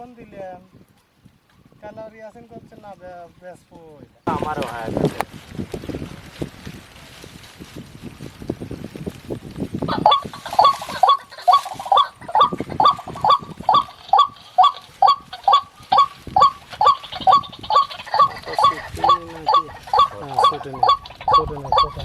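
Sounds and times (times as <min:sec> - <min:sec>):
low wind rumble: 0:00.0 - 0:22.0
waterhen harsh croaking call: 0:09.9 - 0:22.0.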